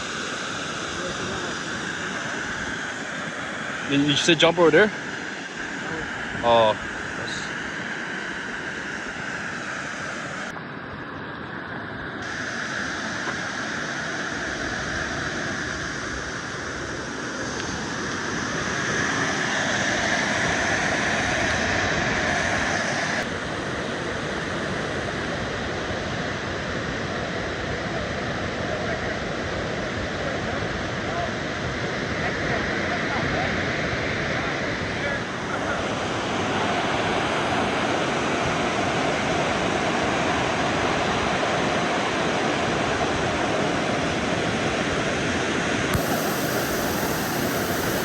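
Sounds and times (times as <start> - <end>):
waterfall rushing: 46.0 - 48.0.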